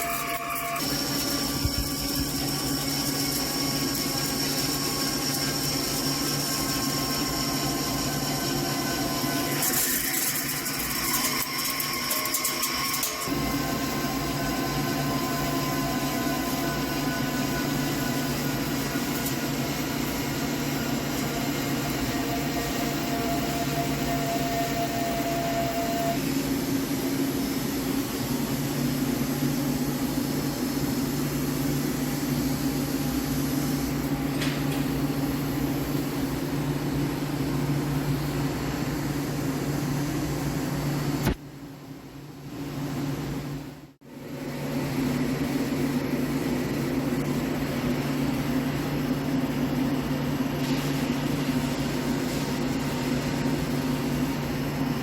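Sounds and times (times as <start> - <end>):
lathe running: 0.0 - 25.9
machine whining tones: 0.0 - 26.2.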